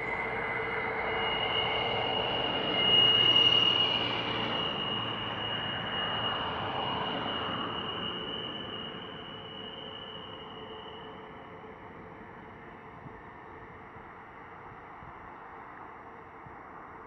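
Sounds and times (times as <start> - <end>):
high-pitched wheel squeal: 0.0 - 11.9.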